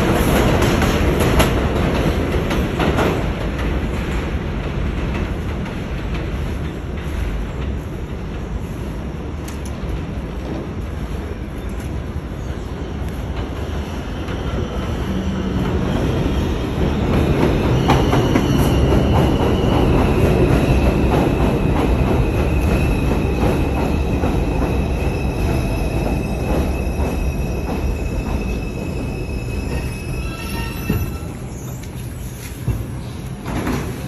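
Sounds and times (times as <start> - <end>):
subway wheels rumbling on rail: 0.0 - 34.0
high wheel squeal: 25.3 - 32.6.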